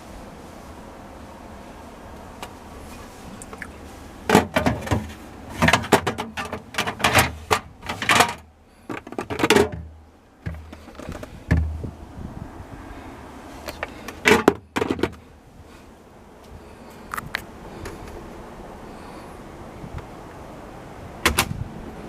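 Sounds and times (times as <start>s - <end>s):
drawers sliding: 4.3s - 8.4s
clattering knocks: 4.3s - 11.8s.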